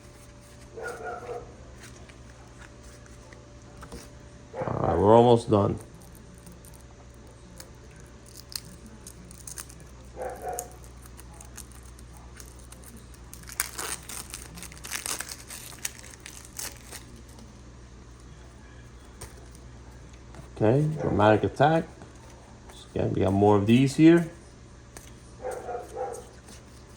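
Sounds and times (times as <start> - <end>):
plastic wrap crinkling and tearing: 5.8 - 17.5.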